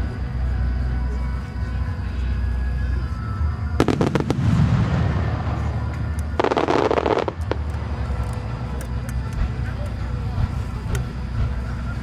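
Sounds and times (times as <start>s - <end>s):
firework crackling: 3.7s - 9.1s
firework shells bursting: 3.8s - 8.5s.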